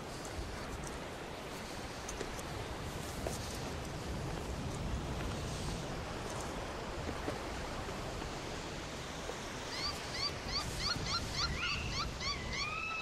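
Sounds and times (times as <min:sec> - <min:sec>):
wind: 0:00.0 - 0:13.0
bird calling: 0:09.6 - 0:13.0.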